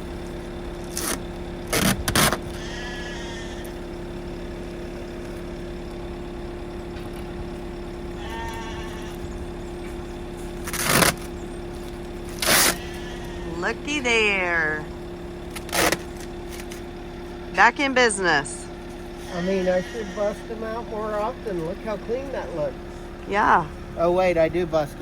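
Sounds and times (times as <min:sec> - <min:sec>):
mechanical hum: 0:00.0 - 0:25.0
short bleating calls: 0:02.5 - 0:03.8, 0:08.1 - 0:09.4, 0:12.4 - 0:13.8, 0:19.2 - 0:20.6.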